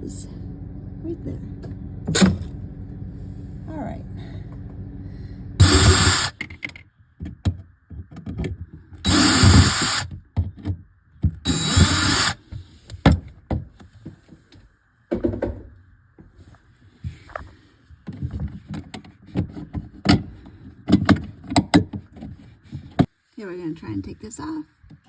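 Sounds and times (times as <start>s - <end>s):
power drill running: 5.6s - 6.4s, 9.0s - 10.1s, 11.4s - 12.4s.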